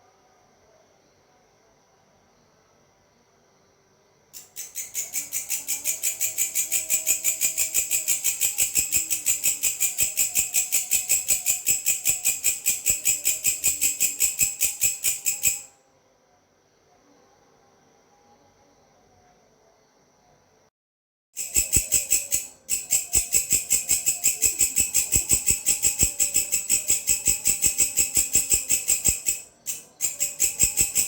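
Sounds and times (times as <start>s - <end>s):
grasshopper stridulating: 4.4s - 15.7s, 21.4s - 31.0s.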